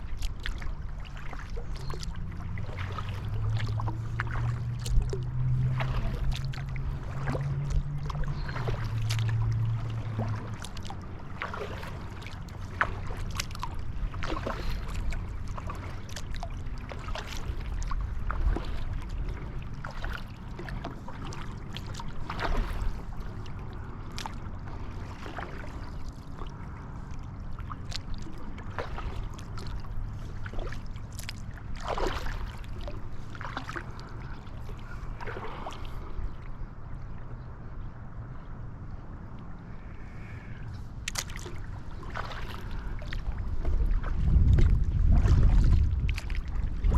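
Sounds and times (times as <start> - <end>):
low rumble: 0.0 - 11.5, 12.2 - 46.9
paddle splashing: 0.0 - 37.9, 39.0 - 46.9
low hum: 0.0 - 46.9
water dripping and trickling: 0.2 - 23.4, 41.0 - 41.6.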